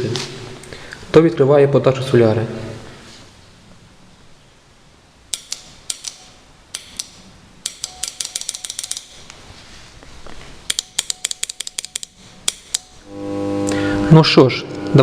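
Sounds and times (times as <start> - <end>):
solenoid valve clicking: 5.3 - 9.2, 10.7 - 13.0.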